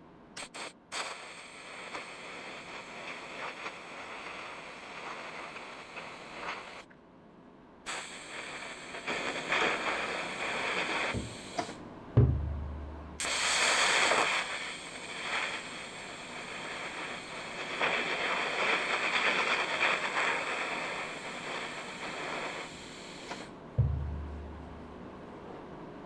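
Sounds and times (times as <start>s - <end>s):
welding arc hissing and crackling: 0.4s - 6.9s, 7.9s - 11.8s, 13.2s - 23.6s.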